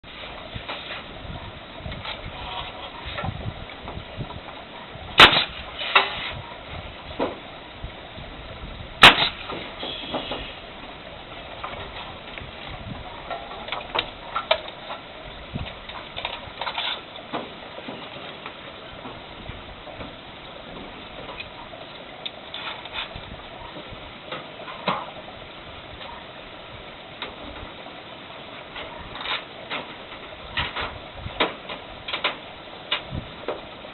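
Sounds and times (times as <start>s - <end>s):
sharp loud crack: 5.2s - 6.1s, 9.0s - 10.5s.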